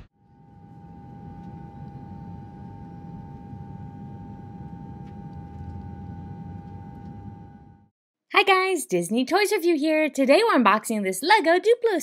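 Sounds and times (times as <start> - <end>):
airplane engine drone: 0.0 - 7.9.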